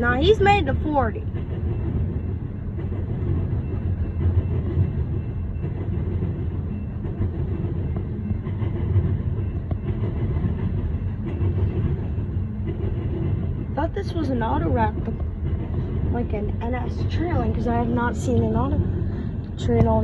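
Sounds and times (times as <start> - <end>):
steel wheels rumbling on rail: 0.0 - 20.0.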